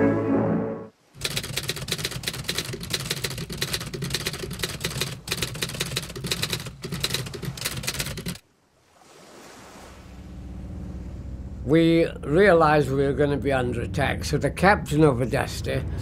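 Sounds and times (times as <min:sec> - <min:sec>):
typewriter keys clacking: 0:01.2 - 0:08.4.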